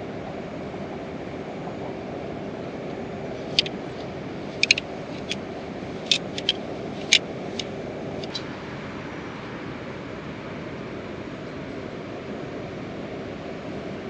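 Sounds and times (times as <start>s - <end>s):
sharp clicks and taps: 4.6s - 5.4s, 6.0s - 8.4s.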